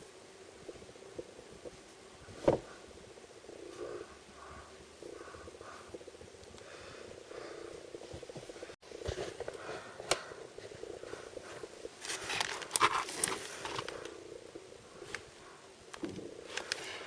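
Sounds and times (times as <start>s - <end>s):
crinkly plastic packaging rustling: 11.4s - 14.1s.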